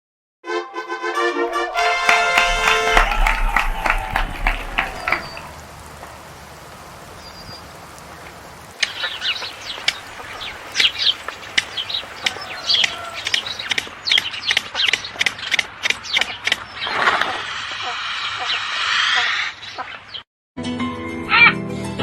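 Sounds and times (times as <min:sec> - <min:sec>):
faint hiss: 0:01.8 - 0:14.0
small birds chirping: 0:04.7 - 0:17.0.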